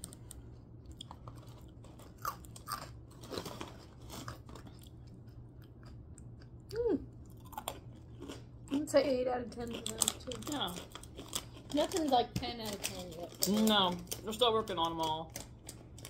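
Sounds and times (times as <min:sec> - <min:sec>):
crunchy snack being chewed: 0:00.0 - 0:08.8, 0:09.6 - 0:12.1.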